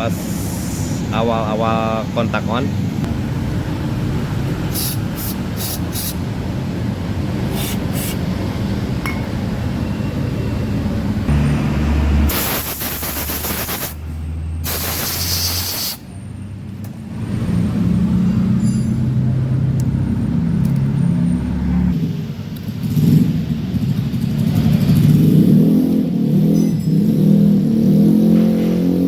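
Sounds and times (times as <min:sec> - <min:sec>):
hissing spray bursts: 0:04.6 - 0:06.2, 0:07.4 - 0:08.2, 0:12.2 - 0:14.0, 0:14.6 - 0:16.0.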